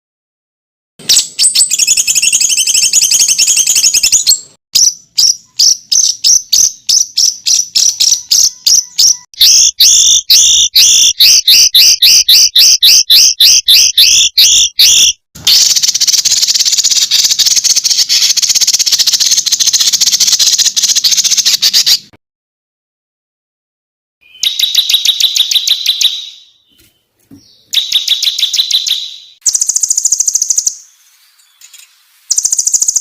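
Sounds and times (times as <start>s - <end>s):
songbird fast high trill: 1.1s - 22.1s, 24.2s - 26.7s, 27.4s - 33.0s.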